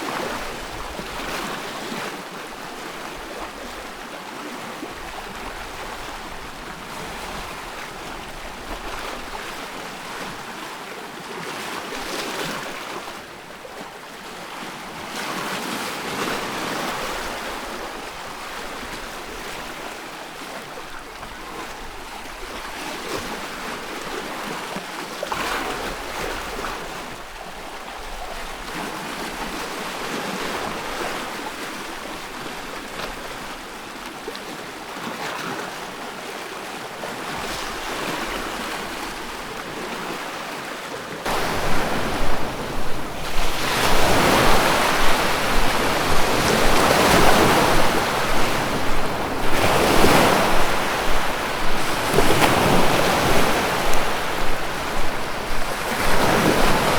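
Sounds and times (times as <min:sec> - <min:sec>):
ocean waves breaking: 0:37.0 - 0:56.9.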